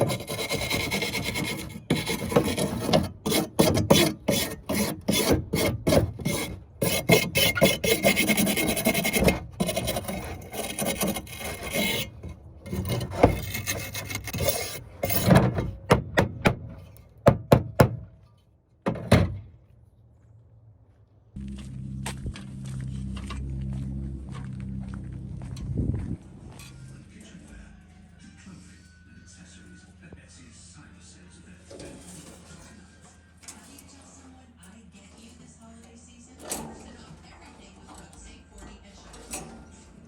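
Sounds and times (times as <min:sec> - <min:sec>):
brush rasping on metal: 0:00.0 - 0:15.6
knocks: 0:15.4 - 0:18.1.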